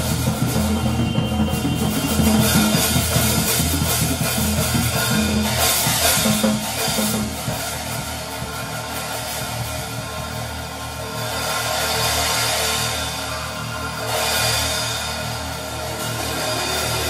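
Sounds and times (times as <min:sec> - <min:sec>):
drum kit cymbals and snare: 0:00.0 - 0:17.0.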